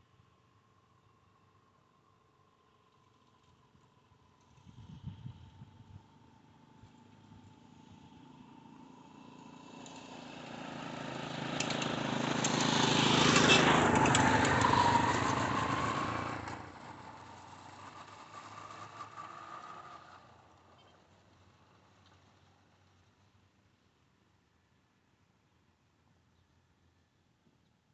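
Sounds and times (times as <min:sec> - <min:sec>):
vehicle passing by: 0:04.5 - 0:22.8.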